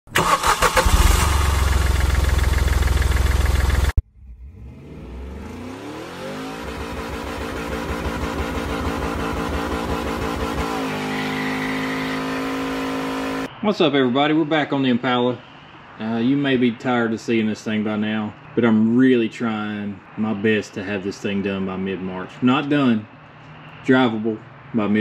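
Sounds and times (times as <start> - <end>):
vehicle engine pulling away: 0.2 - 13.5.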